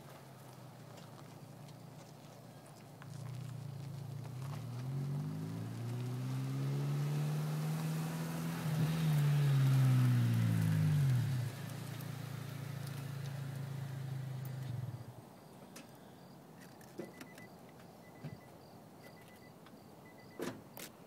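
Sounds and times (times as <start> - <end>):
low engine hum: 0.0 - 15.2
car engine revving: 3.1 - 15.1.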